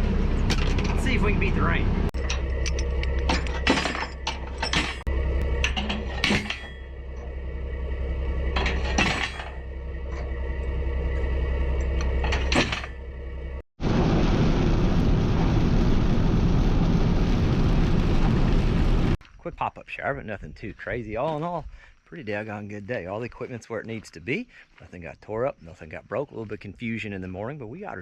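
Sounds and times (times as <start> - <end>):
truck engine idling: 0.0 - 13.6
metal trailer ramps clanking: 2.2 - 7.3, 8.5 - 10.3, 11.8 - 13.2.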